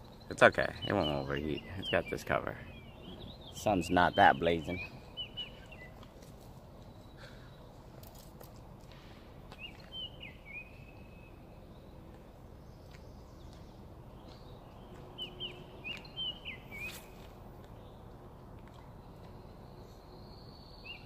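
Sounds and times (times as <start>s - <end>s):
outdoor background noise: 0.0s - 21.0s
songbird whistling: 9.6s - 11.4s, 15.2s - 17.2s.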